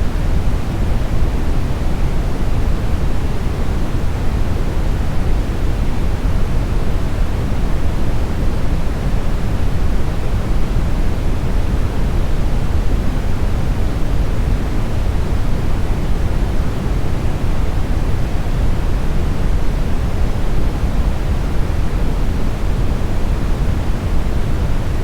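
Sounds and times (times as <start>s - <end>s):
brown noise hiss: 0.0s - 25.0s.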